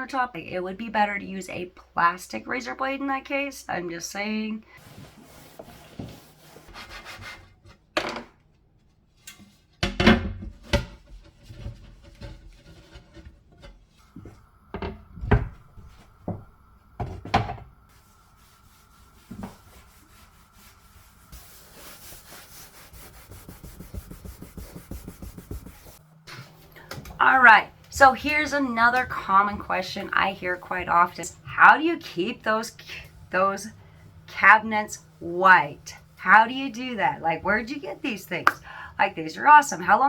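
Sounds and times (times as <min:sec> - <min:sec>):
knocks and clatter on countertop: 0:16.3 - 0:17.7.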